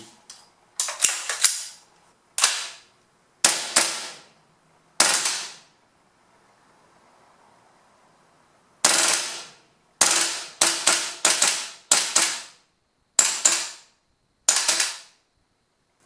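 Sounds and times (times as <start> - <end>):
airsoft rifle shots: 2.4 - 4.3, 5.0 - 5.7, 8.8 - 12.6, 13.2 - 13.9, 14.5 - 15.2.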